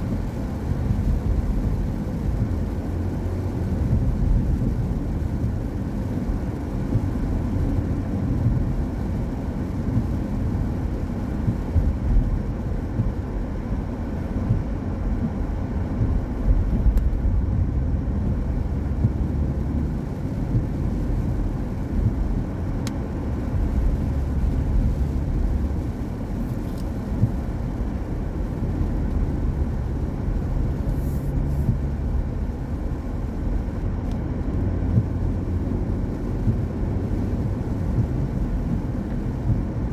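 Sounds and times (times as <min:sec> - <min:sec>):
tyre noise on wet road: 0:00.0 - 0:39.9.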